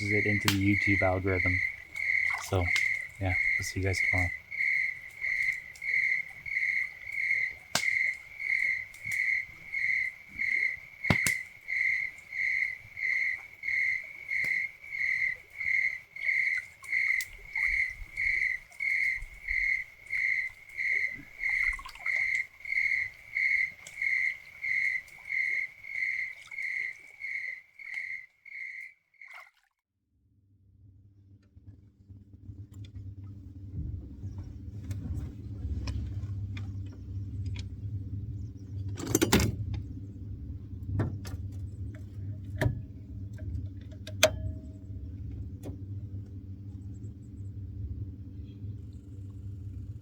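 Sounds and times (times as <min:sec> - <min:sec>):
cricket chirping: 0:00.0 - 0:29.4.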